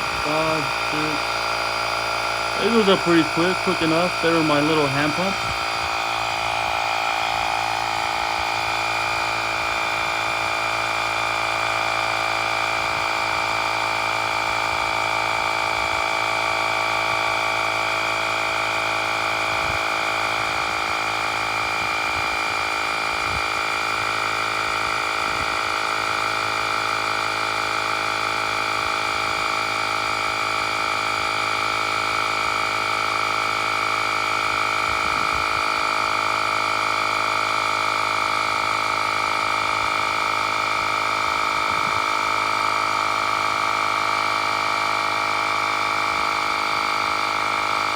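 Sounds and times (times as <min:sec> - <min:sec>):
small air compressor running: 0:00.0 - 0:47.9.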